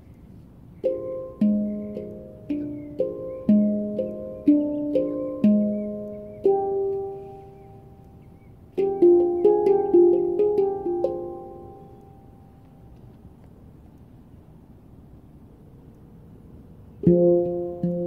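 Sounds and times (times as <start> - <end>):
handpan ringing notes: 0.8 - 8.1, 8.8 - 12.6, 17.0 - 18.0.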